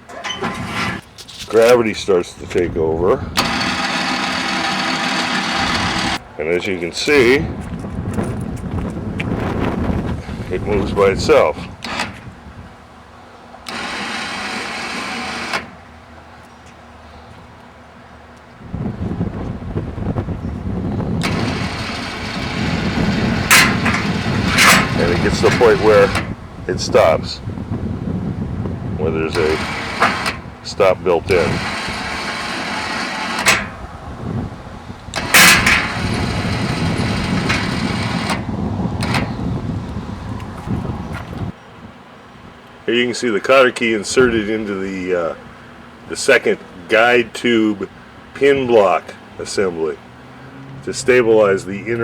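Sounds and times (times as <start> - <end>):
electric winch motor running: 0.0 - 1.0, 2.5 - 6.2, 10.2 - 16.2, 19.7 - 40.6
sharp metal clanks: 23.4 - 26.3, 35.2 - 36.1.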